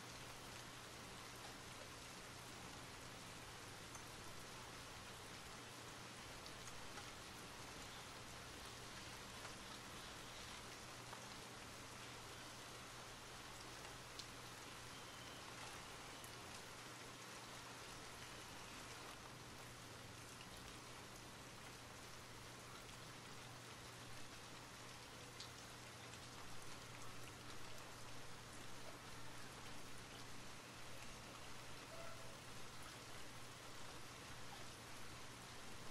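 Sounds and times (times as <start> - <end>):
steady rain falling: 0.0 - 35.9
raindrop ticks: 3.8 - 4.5, 6.4 - 12.1, 13.3 - 21.8, 22.8 - 29.0.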